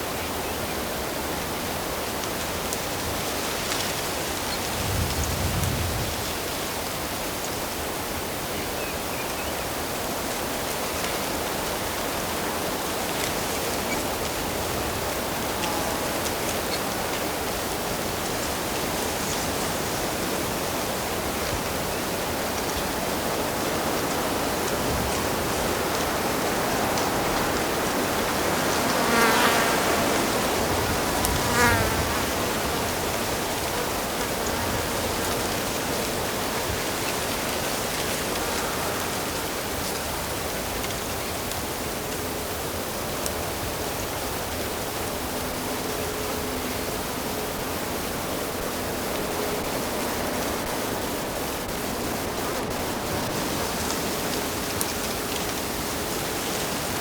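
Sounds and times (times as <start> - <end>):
fly buzzing past: 28.4 - 32.9.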